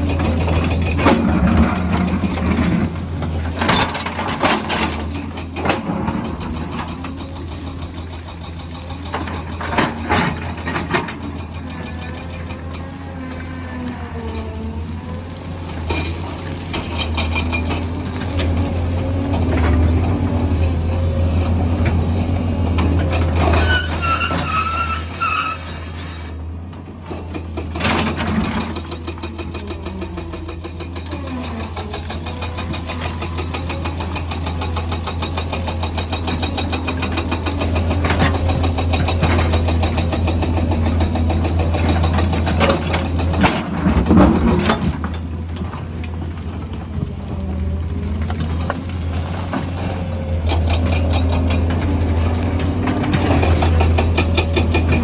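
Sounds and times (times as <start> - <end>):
heavy machinery engine drone: 0.0 - 55.0
wavering squeal: 23.5 - 26.4.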